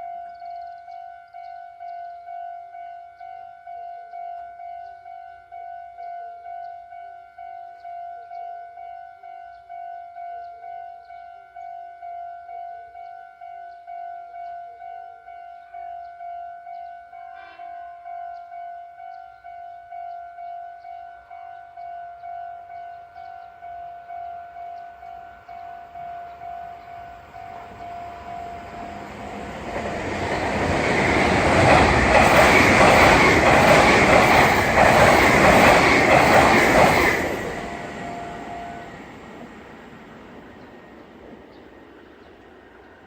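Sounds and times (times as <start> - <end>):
crossing warning bell ringing: 0.9 - 41.0
electric train passing: 22.2 - 43.0.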